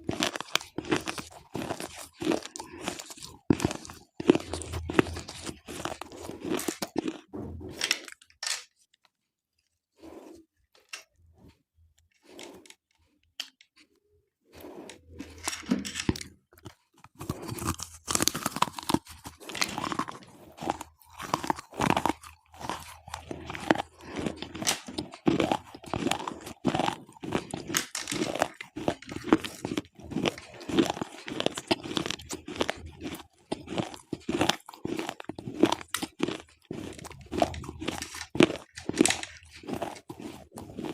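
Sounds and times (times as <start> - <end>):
gritty chewing crunches: 0.0 - 7.3, 16.1 - 40.9.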